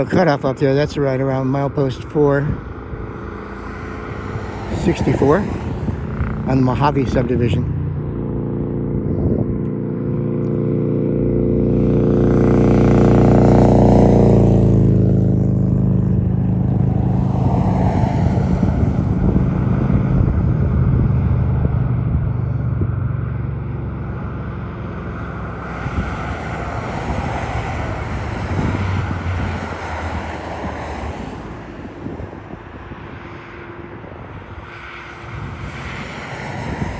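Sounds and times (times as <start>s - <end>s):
traffic rumble: 0.0s - 36.9s
vehicle passing by: 0.0s - 36.9s.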